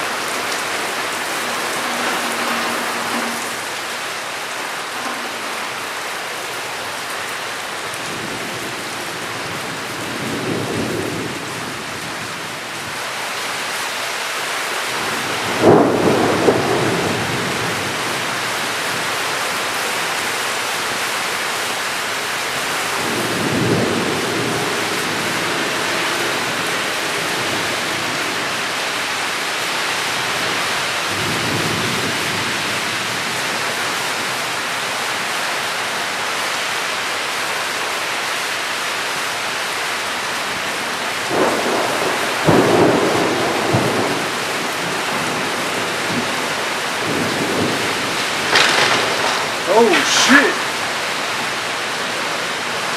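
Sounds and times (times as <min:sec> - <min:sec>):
rolling thunder rumbles: 0:00.0 - 0:06.8, 0:15.0 - 0:18.4, 0:41.3 - 0:49.7
heavy rain: 0:00.0 - 0:52.9
sharp thunderclap: 0:15.5 - 0:17.6, 0:41.3 - 0:45.4, 0:47.0 - 0:49.7.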